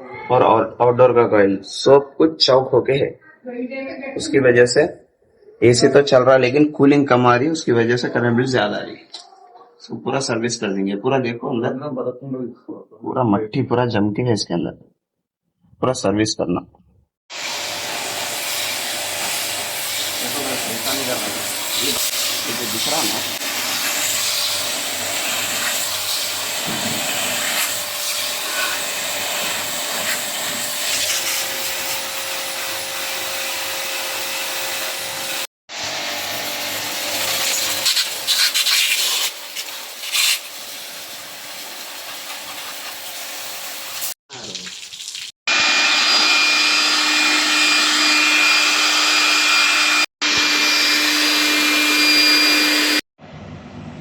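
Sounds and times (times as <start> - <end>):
pressure pump spraying water: 17.3 - 53.0.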